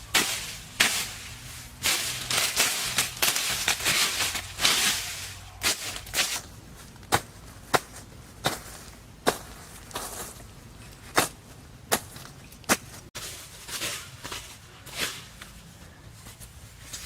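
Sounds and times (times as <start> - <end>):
hand tool scraping: 0.0 - 6.5.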